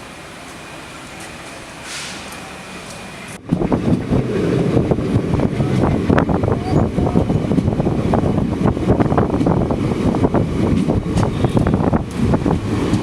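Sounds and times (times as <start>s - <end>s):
train rumble: 0.0s - 13.0s
wind buffeting microphone: 3.4s - 13.0s.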